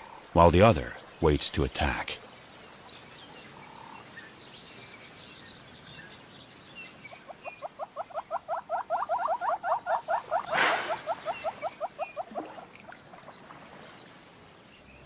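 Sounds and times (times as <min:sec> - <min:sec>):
animal rapid rising chirps: 0:08.9 - 0:12.0.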